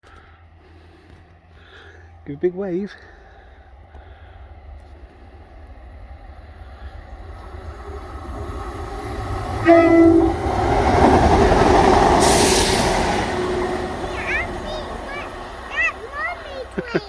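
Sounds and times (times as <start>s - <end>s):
diesel train passing: 0.0s - 17.0s
train horn beep: 9.6s - 11.2s.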